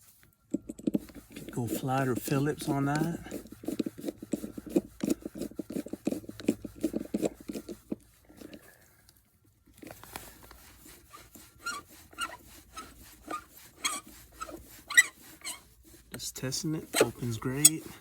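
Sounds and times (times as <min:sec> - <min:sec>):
screwdriver scraping ratchety strokes: 0:01.0 - 0:07.9, 0:11.6 - 0:15.7, 0:16.5 - 0:18.0.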